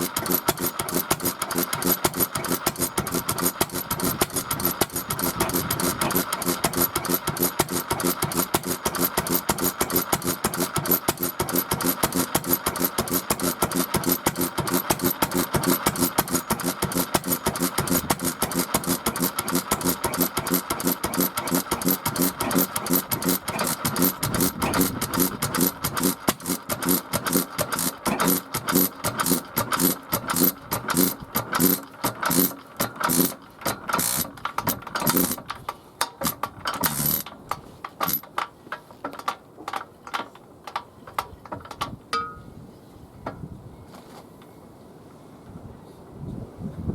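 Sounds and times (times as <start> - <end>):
small engine running: 0.0 - 35.6, 36.2 - 37.4, 38.0 - 38.2.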